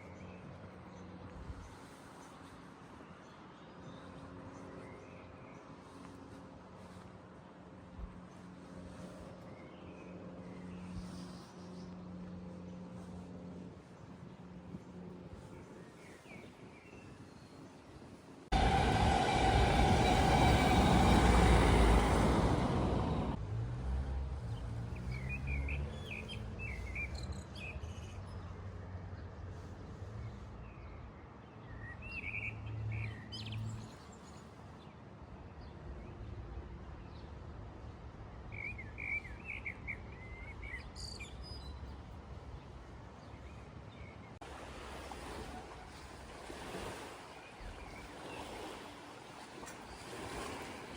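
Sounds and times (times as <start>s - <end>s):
loud rumbling noise: 18.5s - 23.4s.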